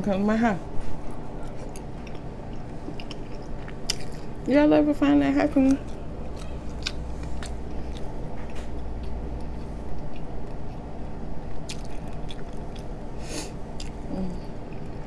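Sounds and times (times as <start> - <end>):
low hum: 0.0 - 15.0
chewing with wet mouth clicks: 1.4 - 4.4, 5.6 - 10.8, 11.5 - 13.0, 13.8 - 15.0.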